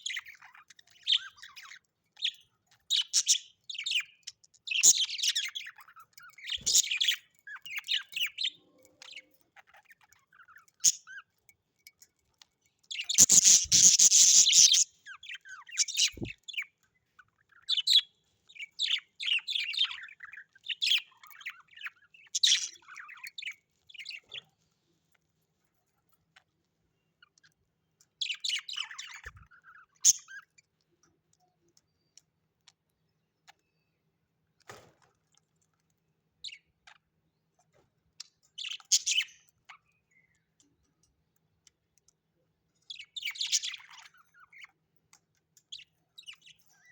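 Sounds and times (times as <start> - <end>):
parrots chirping: 0.0 - 12.1, 12.8 - 24.4, 38.6 - 40.1, 42.8 - 44.8.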